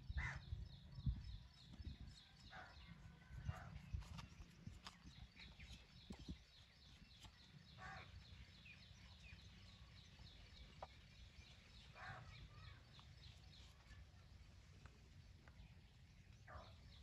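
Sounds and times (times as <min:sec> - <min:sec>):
bird chirping: 0:00.0 - 0:17.0
short louder bird calls: 0:07.7 - 0:08.2.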